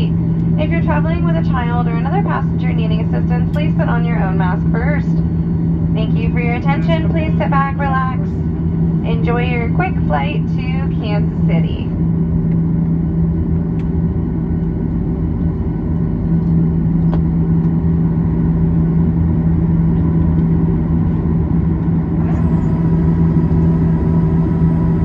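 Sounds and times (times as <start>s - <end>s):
high-pitched whine: 0.0s - 12.2s, 22.0s - 25.0s
aircraft cabin drone: 0.0s - 25.0s.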